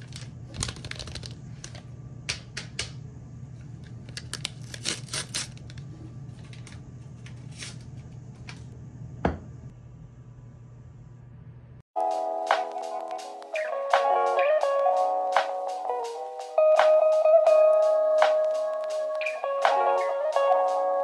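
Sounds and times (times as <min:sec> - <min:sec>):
paper wrapper rustling and tearing: 0:00.0 - 0:01.8, 0:04.1 - 0:05.8.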